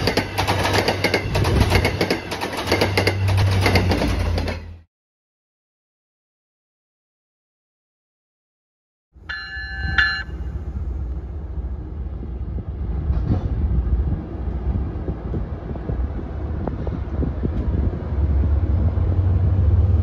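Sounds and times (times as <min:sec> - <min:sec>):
train rumbling: 0:00.0 - 0:04.9, 0:09.2 - 0:20.0.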